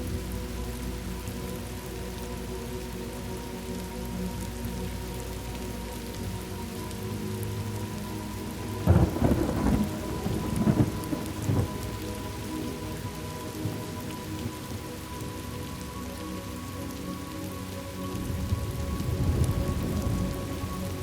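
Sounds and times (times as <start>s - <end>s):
steady rain falling: 0.0s - 21.0s
thunder clap rumbling: 8.9s - 11.9s.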